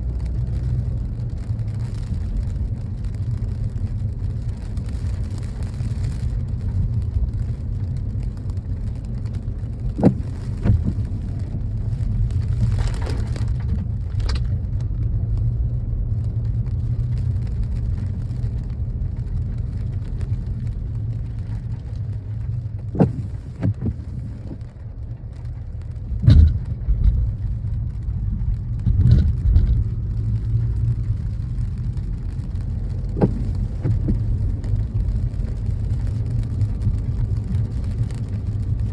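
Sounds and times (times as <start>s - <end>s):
car road rumble: 0.0s - 38.9s
sharp knocks: 26.2s - 27.2s.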